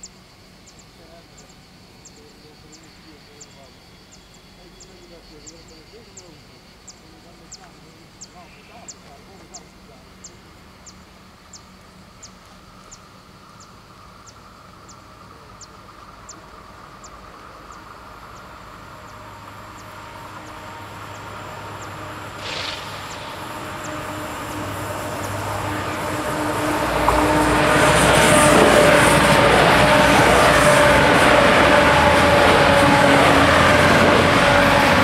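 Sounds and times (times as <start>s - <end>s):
diesel train approaching: 0.0s - 35.0s
short burst of noise: 22.1s - 29.7s.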